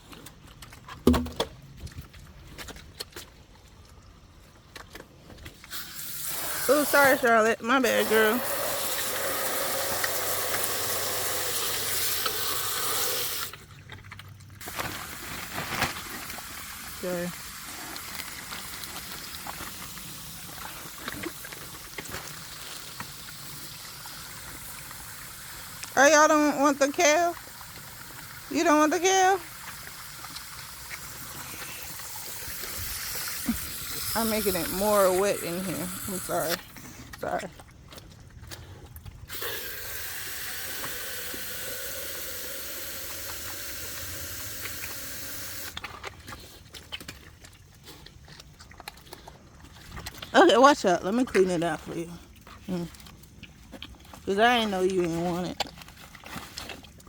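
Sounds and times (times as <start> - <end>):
pigs snuffling and grunting: 0.0 - 57.0
water hissing from hose: 5.7 - 13.6, 27.4 - 36.7, 39.3 - 45.8.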